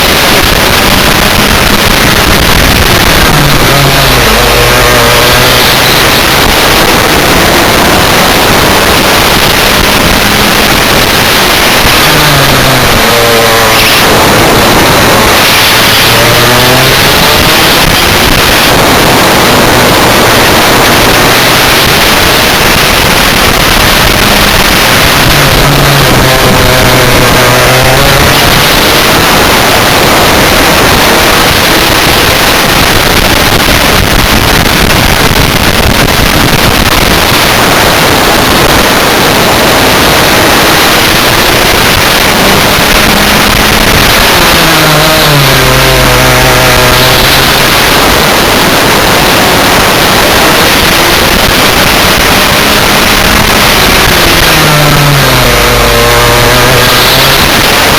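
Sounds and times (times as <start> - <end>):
kart engine racing: 0.0 - 57.9.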